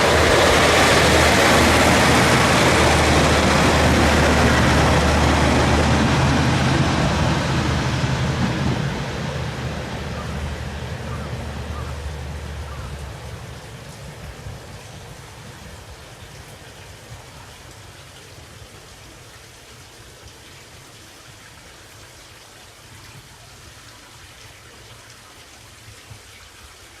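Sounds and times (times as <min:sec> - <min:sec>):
railcar low rumble: 0:00.0 - 0:17.6.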